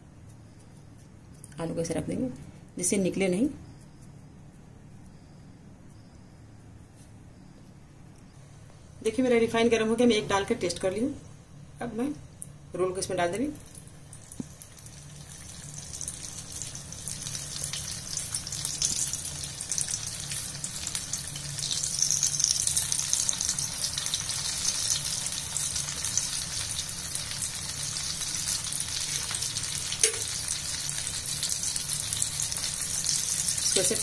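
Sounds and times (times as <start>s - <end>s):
rolls sizzling in hot oil: 13.0s - 34.0s.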